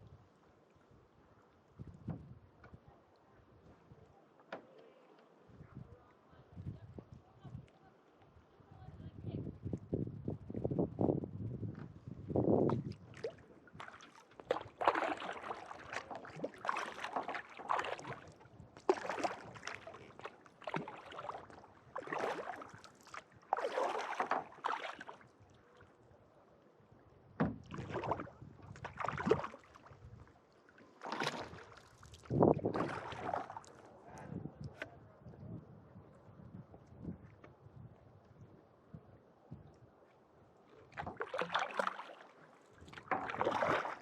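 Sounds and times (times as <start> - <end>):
kayak paddle strokes in water: 11.9 - 26.0, 27.4 - 34.9, 40.1 - 44.0.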